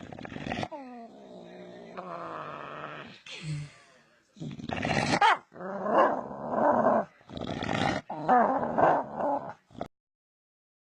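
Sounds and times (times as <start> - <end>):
dog growling: 0.0 - 3.2, 4.4 - 9.9.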